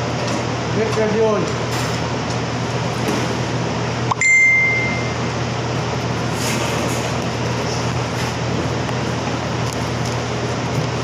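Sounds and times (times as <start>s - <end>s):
air conditioner humming: 0.0s - 11.0s
high electronic beep: 4.1s - 5.2s.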